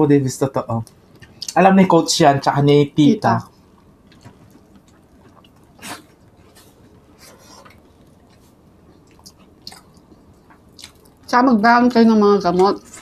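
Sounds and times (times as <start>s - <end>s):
people chewing: 0.8s - 1.6s, 3.4s - 11.3s.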